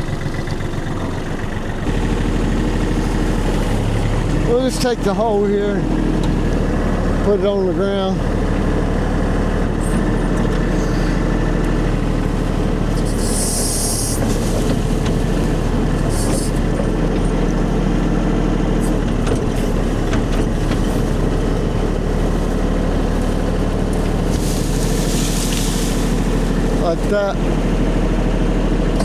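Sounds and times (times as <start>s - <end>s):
tractor diesel engine running: 0.0s - 29.0s
hydraulic hisses: 12.9s - 14.4s.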